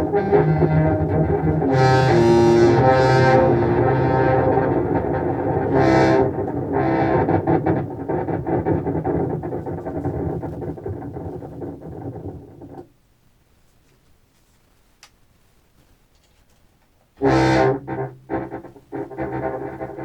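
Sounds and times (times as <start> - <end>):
glitchy clarinet delay repeats: 0.0 - 9.1, 17.2 - 20.0.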